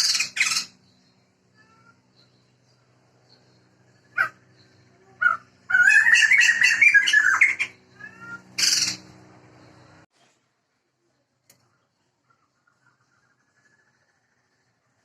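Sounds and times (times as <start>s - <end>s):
cackling laughing bird chatter: 0.0s - 0.8s, 4.1s - 9.2s
harsh bird squawk: 0.0s - 0.8s, 4.1s - 9.2s
bird calling: 0.0s - 2.3s, 4.0s - 10.0s.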